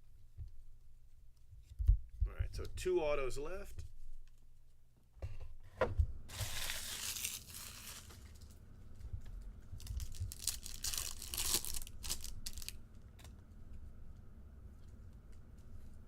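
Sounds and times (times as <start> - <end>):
foil wrapper crinkling: 6.3 - 8.6, 9.7 - 13.3
foil wrapper tearing: 6.3 - 8.6, 9.8 - 12.8.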